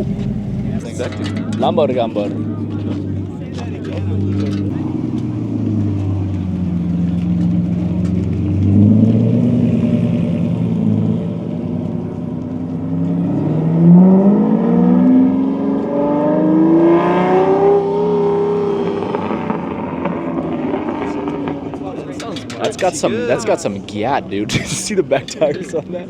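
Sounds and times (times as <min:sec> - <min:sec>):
car engine revving: 0:00.0 - 0:25.8.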